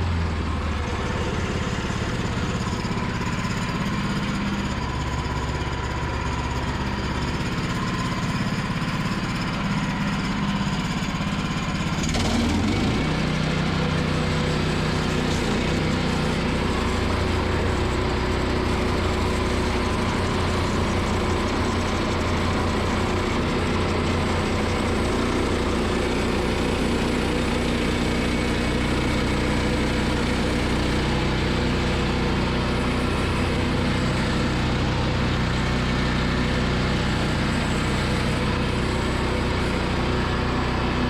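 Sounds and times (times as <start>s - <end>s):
gas engine running: 0.0s - 41.0s
band saw blade cutting log: 12.0s - 40.9s.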